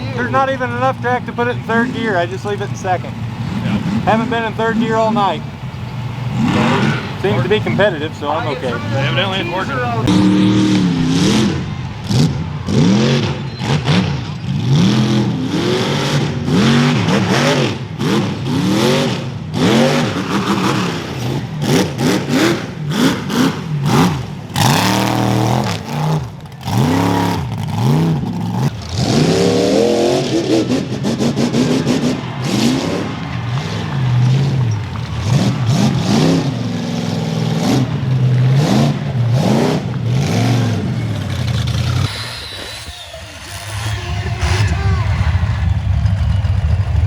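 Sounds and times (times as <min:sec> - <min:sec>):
truck engine revving: 0:00.0 - 0:47.0.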